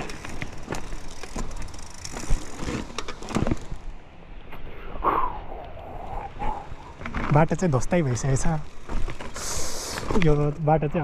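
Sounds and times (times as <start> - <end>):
bike knocking and rattling: 0.0 - 4.0, 6.8 - 11.0
tyre noise on dirt: 0.0 - 4.0, 6.5 - 11.0.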